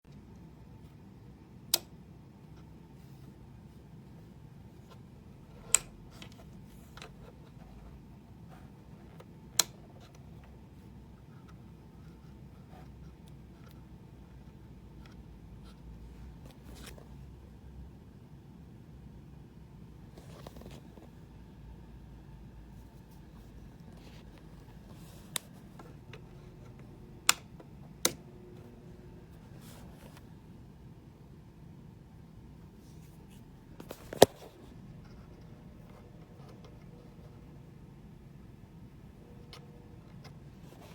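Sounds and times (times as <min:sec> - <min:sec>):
low steady hum: 0:00.1 - 0:40.9
objects being handled: 0:22.7 - 0:30.3, 0:32.8 - 0:37.0.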